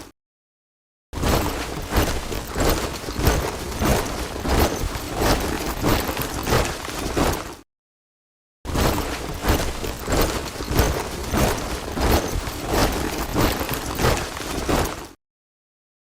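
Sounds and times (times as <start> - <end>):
soldiers marching in step: 1.4 - 7.6, 8.9 - 15.2.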